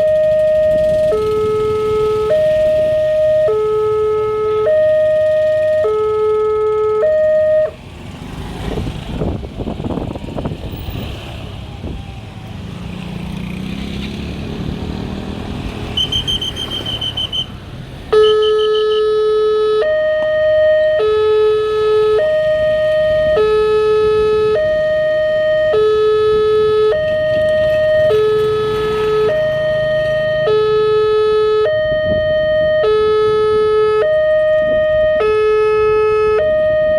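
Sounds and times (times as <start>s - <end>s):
vehicle passing: 0.0s - 6.0s, 6.7s - 18.2s, 20.7s - 36.9s
level crossing alarm: 0.0s - 7.8s, 18.1s - 36.9s
traffic noise: 0.0s - 36.9s.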